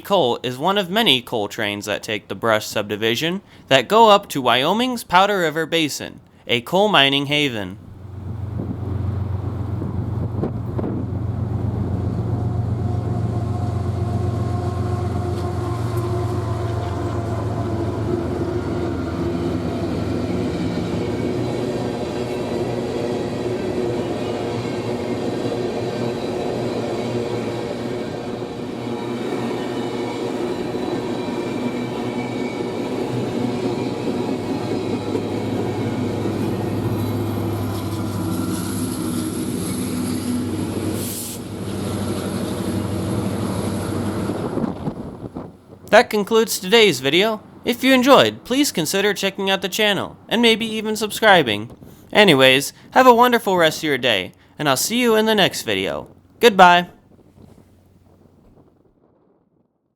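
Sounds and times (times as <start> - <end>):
train cars rolling on rails: 7.8 - 46.0.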